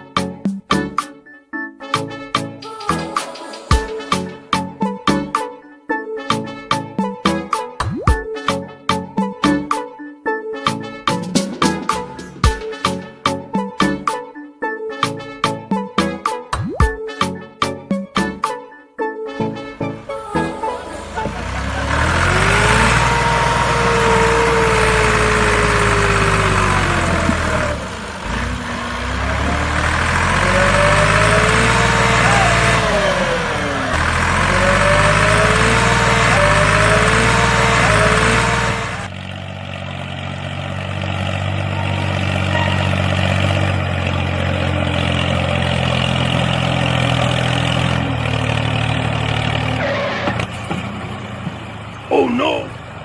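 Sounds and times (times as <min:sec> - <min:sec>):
vehicle engine running: 0:19.9 - 0:53.0.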